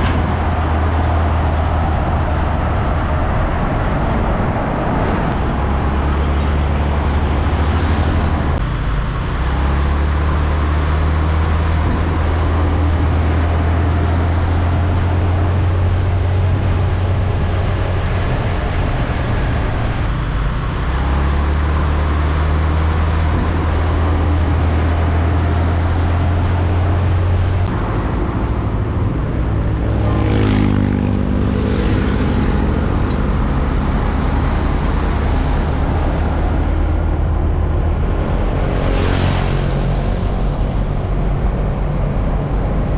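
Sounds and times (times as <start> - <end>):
deep engine rumble: 0.0 - 42.9
heavy trucks passing: 0.0 - 42.9.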